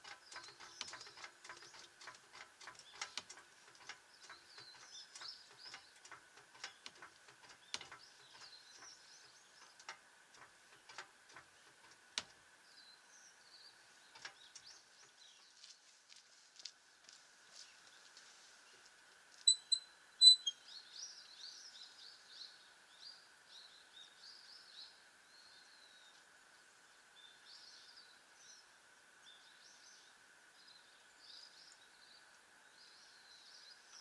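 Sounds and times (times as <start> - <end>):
light clicks and taps: 0.0 - 12.4, 14.1 - 17.2
faint bird chirps: 19.5 - 26.2.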